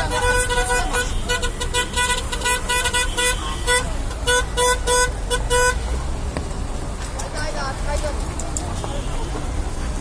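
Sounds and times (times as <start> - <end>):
vehicle horn tooting: 0.0 - 5.8
engines and traffic rumble: 0.0 - 10.0.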